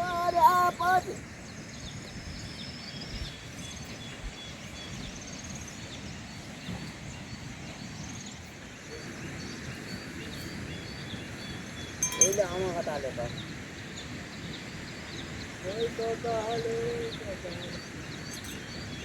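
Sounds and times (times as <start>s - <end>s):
low outdoor rush: 0.0s - 19.0s
faint high chirps: 12.0s - 12.8s.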